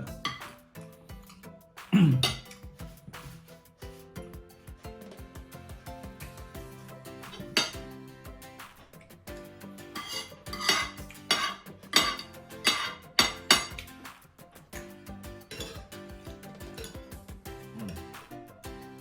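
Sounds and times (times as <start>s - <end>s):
background music: 0.0s - 19.0s
spoon clinking against bowl: 7.3s - 7.8s, 10.0s - 13.9s, 15.4s - 16.0s.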